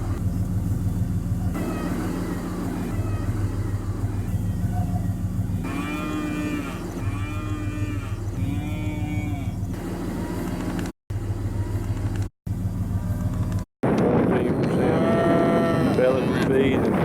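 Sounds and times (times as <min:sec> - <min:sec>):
steady low hum: 0:00.0 - 0:17.0
calves mooing: 0:01.6 - 0:04.4, 0:05.6 - 0:09.8, 0:14.7 - 0:16.2.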